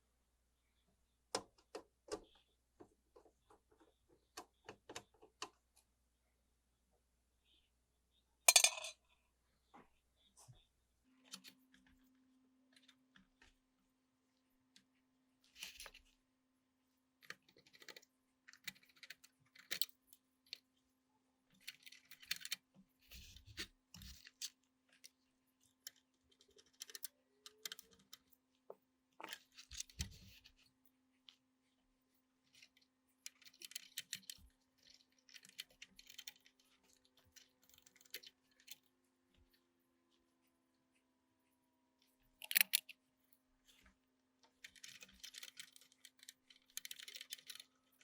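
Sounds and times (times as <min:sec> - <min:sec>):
hard objects clicking and scraping: 0:08.5 - 0:09.0, 0:42.4 - 0:43.0, 0:44.4 - 0:48.0.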